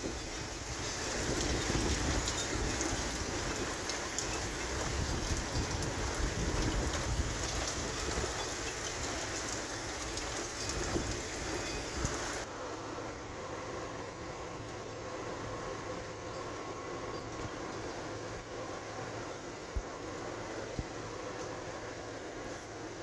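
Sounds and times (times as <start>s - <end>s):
heavy rain hiss: 0.0s - 12.8s.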